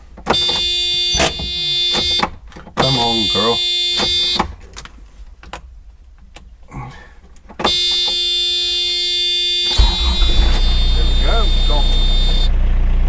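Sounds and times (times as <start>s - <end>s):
electronic warning buzzer: 0.3s - 4.5s, 7.7s - 12.5s
engine low rumble: 9.8s - 13.0s.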